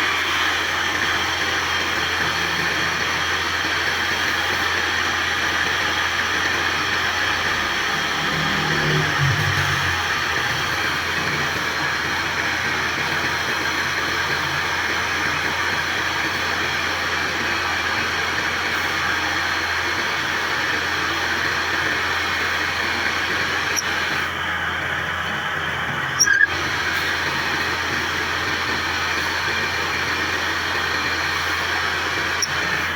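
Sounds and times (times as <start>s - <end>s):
wood lathe turning wood: 0.0s - 32.9s.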